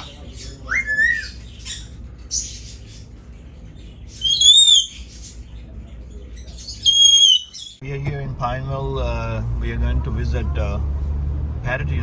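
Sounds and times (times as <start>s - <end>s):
parrots calling: 0.0s - 7.8s
parrot harsh screech: 4.2s - 5.0s, 6.8s - 7.8s.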